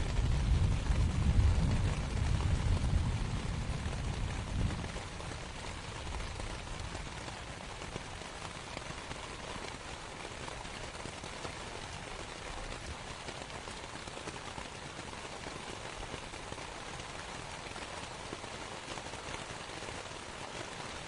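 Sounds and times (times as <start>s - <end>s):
deep thunder rumble: 0.0s - 6.9s
rain pattering on canvas: 0.0s - 21.0s.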